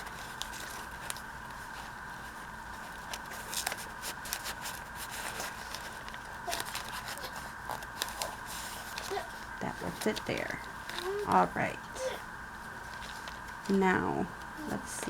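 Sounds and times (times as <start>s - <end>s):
paper rustling: 0.0s - 14.9s
steady background hum: 0.0s - 15.0s.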